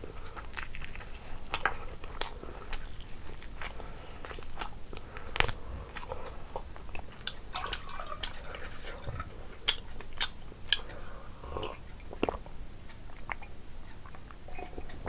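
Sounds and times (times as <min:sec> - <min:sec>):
person chewing food: 0:00.0 - 0:15.0
wet mouth clicks: 0:09.7 - 0:15.0.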